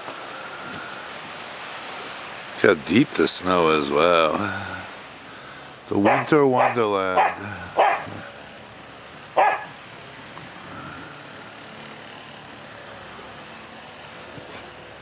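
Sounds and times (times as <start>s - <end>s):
dog barking sharply: 6.0s - 8.1s, 9.4s - 9.7s.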